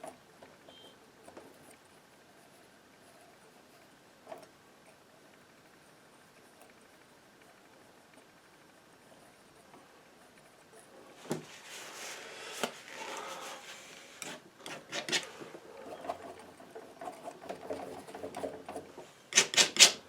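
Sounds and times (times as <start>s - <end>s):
palette knife scraping: 11.5s - 17.3s, 19.3s - 20.0s.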